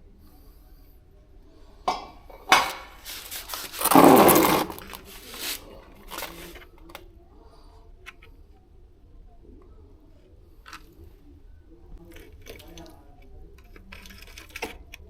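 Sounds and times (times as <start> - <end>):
hard objects knocking together: 2.5 - 6.5
scraping and rustling: 2.5 - 6.8.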